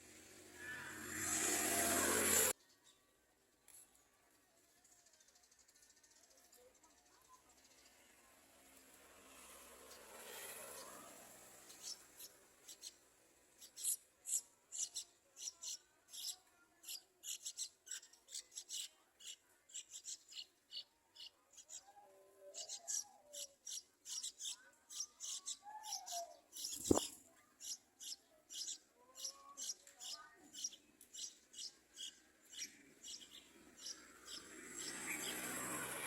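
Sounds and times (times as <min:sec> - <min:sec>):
nestlings begging calls: 0:10.4 - 0:13.0, 0:13.6 - 0:36.0.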